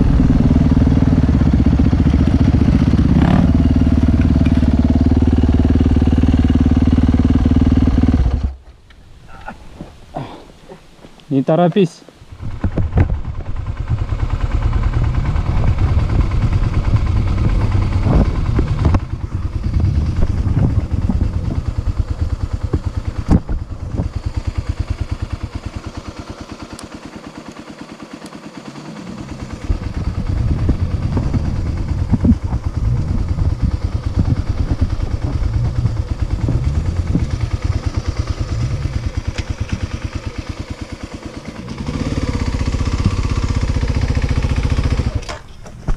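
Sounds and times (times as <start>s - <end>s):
dirt bike engine: 0.0s - 45.9s.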